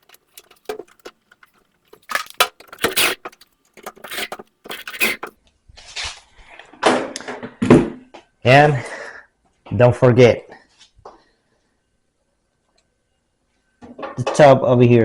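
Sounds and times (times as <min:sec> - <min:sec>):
sheet metal panels rattling: 0:00.0 - 0:05.3
short scraping sounds: 0:00.0 - 0:05.3.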